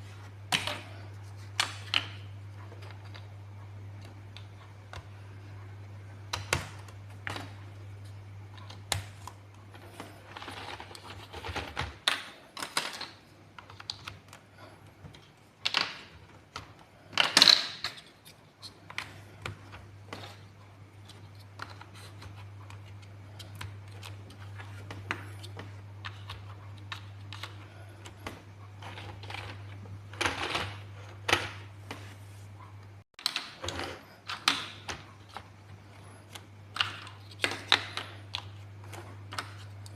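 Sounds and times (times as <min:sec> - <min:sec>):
steady low hum: 0:00.0 - 0:33.0
plastic blocks clicking: 0:08.5 - 0:14.4, 0:15.1 - 0:20.4, 0:36.2 - 0:39.9.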